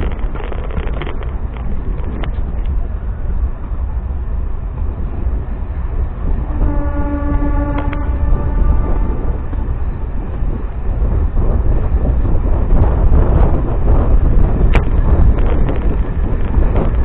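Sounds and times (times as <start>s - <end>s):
wheels clicking over rail joints: 0.0s - 6.6s, 7.3s - 17.0s
electric train rumbling: 0.0s - 17.0s
train horn: 6.3s - 10.5s.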